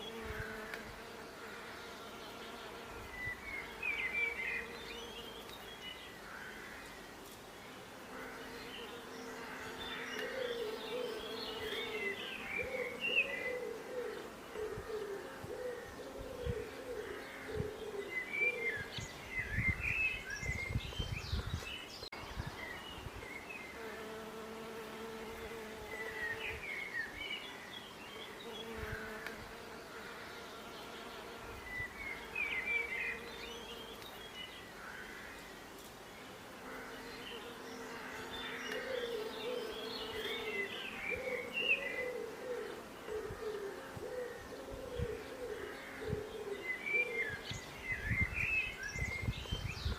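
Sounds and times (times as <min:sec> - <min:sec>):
bees buzzing: 0:00.0 - 0:05.8, 0:23.7 - 0:26.6
birds chirping: 0:07.7 - 0:49.9.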